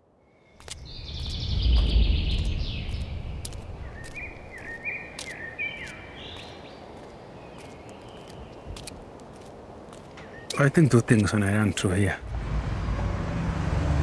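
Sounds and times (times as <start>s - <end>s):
songbirds singing: 0.2s - 12.2s
low rumble: 1.0s - 4.5s.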